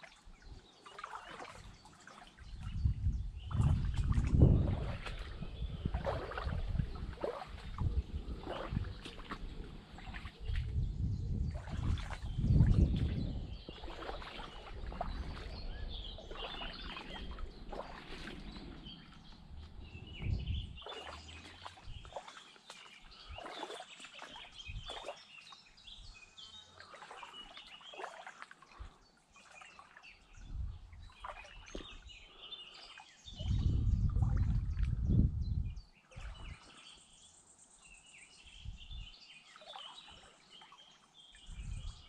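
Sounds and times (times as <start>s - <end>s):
small birds chirping and singing: 0.0s - 42.0s
low rumble: 16.8s - 22.1s.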